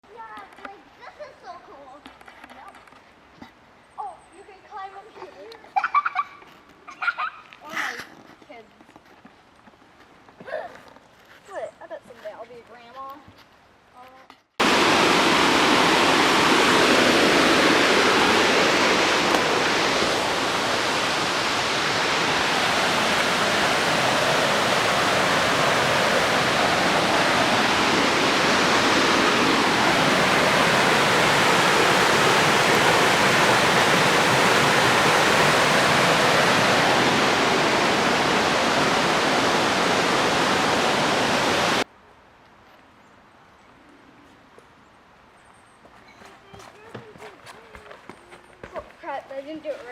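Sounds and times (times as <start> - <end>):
running water: 14.6 - 41.8.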